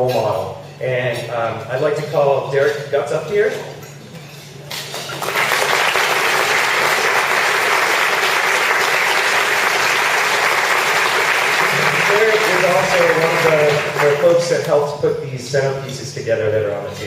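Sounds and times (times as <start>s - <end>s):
audience applauding: 5.0s - 14.6s.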